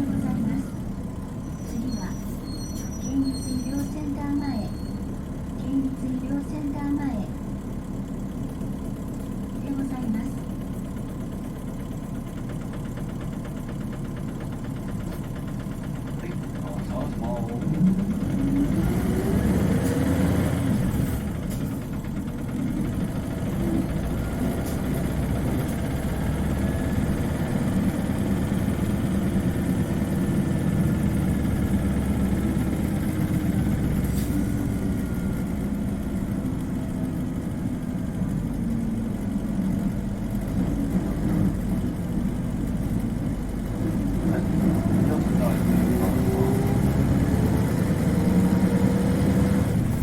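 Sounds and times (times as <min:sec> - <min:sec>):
faint engine whine: 0:00.0 - 0:12.9, 0:13.6 - 0:50.0
bus engine running: 0:00.0 - 0:50.0.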